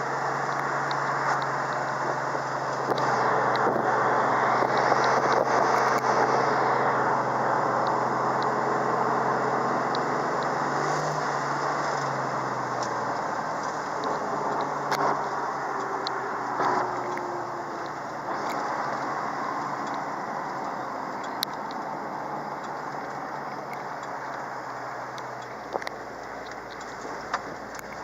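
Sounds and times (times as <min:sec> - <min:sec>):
car engine droning from inside cabin: 0:00.0 - 0:28.0
road and tyre noise: 0:00.0 - 0:28.0
light ticks and rattles: 0:09.8 - 0:28.0.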